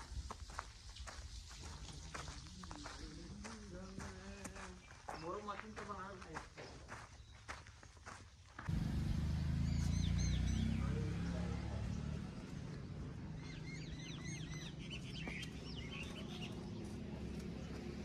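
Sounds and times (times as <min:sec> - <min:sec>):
small birds chirping: 0:00.5 - 0:08.2, 0:09.2 - 0:18.0.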